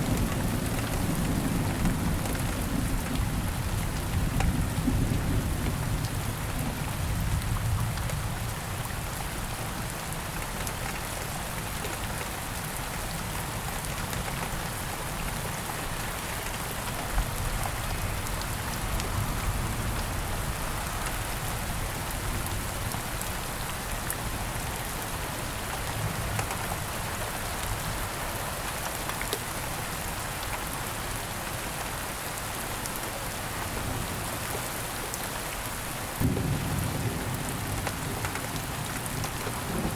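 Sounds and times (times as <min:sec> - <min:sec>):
rain falling: 0:00.0 - 0:39.9
distant thunder rumble: 0:36.2 - 0:39.9.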